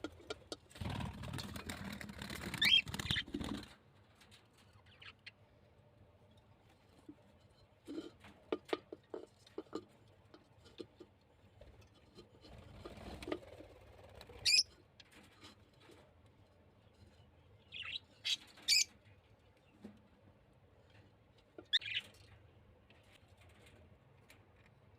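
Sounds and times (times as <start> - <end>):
birds tapping and scratching in cage: 0.0 - 24.9
small birds chirping: 2.4 - 3.5, 4.6 - 5.6, 13.6 - 14.8, 16.7 - 19.9, 21.4 - 22.6.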